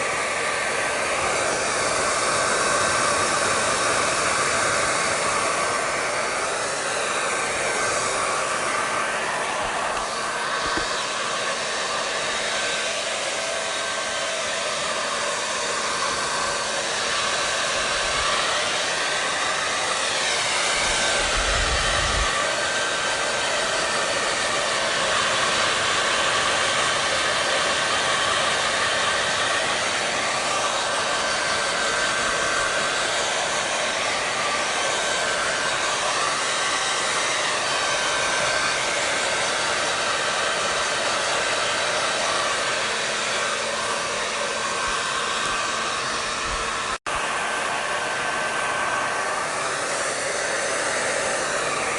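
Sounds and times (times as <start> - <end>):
hair dryer running: 0.0 - 51.9.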